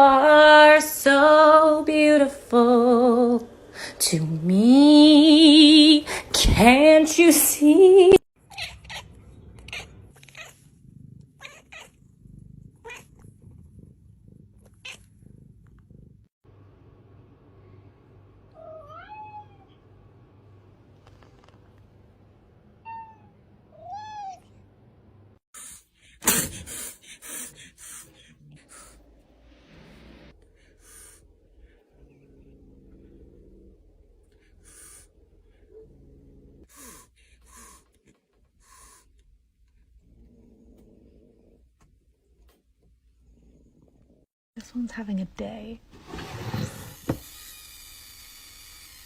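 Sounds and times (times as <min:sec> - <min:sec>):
cat meowing: 0:18.6 - 0:19.7.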